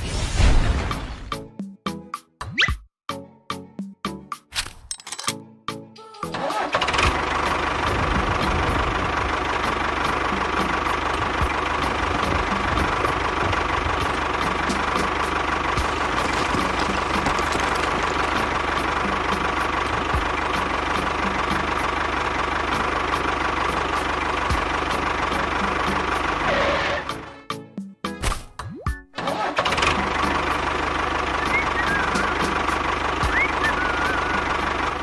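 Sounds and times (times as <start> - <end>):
small engine idling: 6.4 - 26.6, 29.4 - 35.0.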